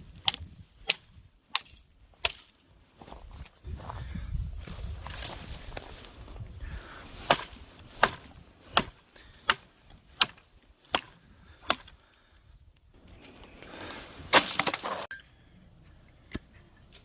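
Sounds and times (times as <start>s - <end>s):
axe chopping wood: 0.2s - 2.5s, 7.2s - 12.0s, 14.3s - 15.1s.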